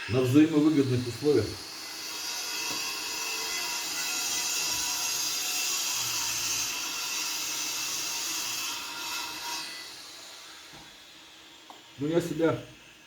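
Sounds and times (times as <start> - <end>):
power tool running with hiss: 0.0 - 13.0.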